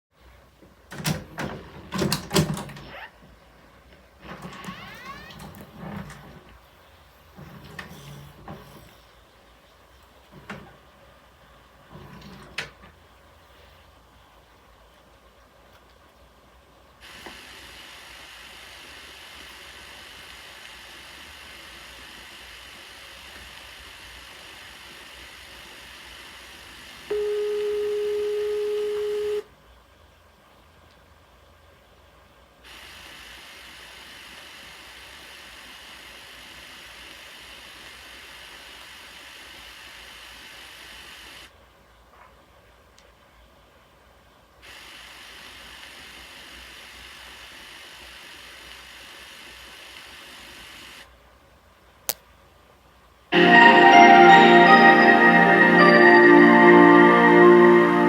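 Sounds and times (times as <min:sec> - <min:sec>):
tape hiss: 0:00.2 - 0:29.7, 0:32.6 - 0:58.0
music with mallet-like notes: 0:53.4 - 0:58.0.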